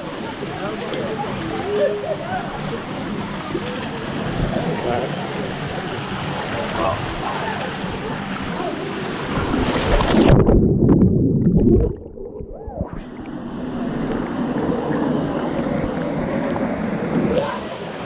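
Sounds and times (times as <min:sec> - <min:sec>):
muffled underwater gurgling: 0:04.2 - 0:17.8.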